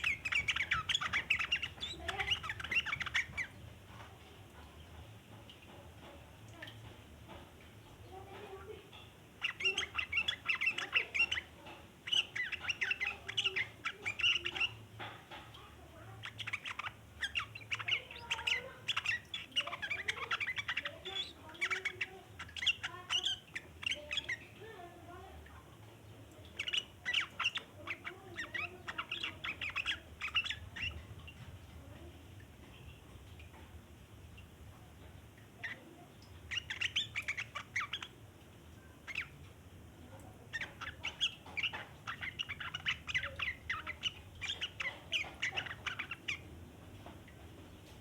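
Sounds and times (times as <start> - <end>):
bird chattering in rapid sharp notes: 0.0 - 3.5.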